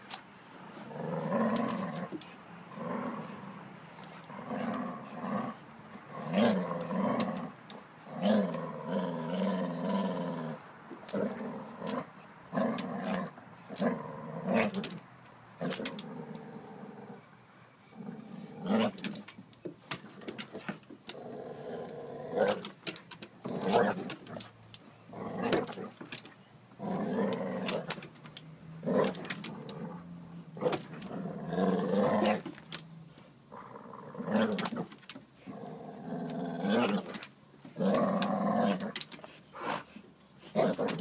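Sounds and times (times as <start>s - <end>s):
dogs growling in play: 0.6s - 15.0s, 15.6s - 17.2s, 17.9s - 19.3s, 20.0s - 22.8s, 23.4s - 24.5s, 25.1s - 26.0s, 26.8s - 28.1s, 28.7s - 32.6s, 33.5s - 41.0s
sharp clicks: 14.7s - 15.0s, 22.5s - 24.9s, 27.7s - 29.8s, 38.2s - 39.3s.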